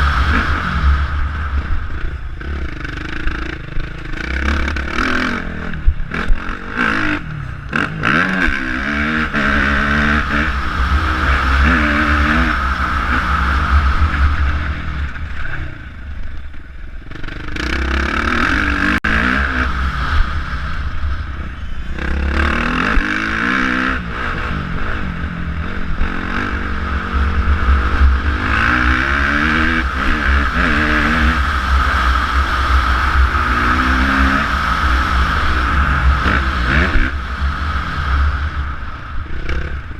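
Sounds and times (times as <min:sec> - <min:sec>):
wind rushing over microphone: 0:00.0 - 0:16.3
motocross bike engine revving: 0:00.0 - 0:39.9.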